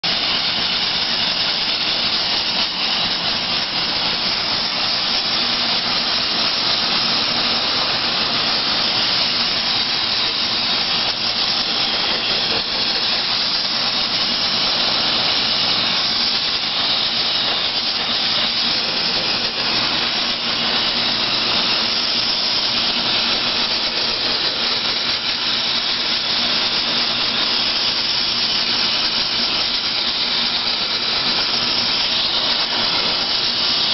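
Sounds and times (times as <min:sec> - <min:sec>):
soda blaster hissing: 0:00.0 - 0:33.9.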